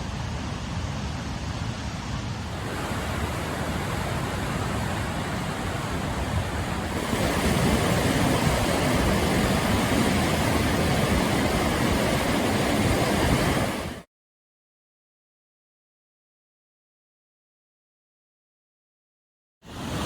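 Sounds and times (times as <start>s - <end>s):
river rapids roaring: 2.5s - 14.0s.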